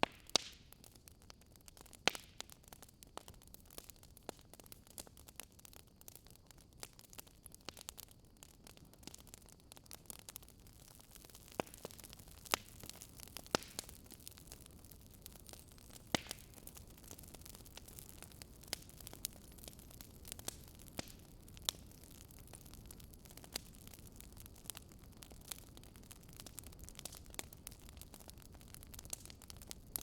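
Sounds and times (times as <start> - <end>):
sharp pops of fire: 0.0 - 30.0
wood fire crackling: 0.0 - 30.0
fire hissing: 6.8 - 30.0.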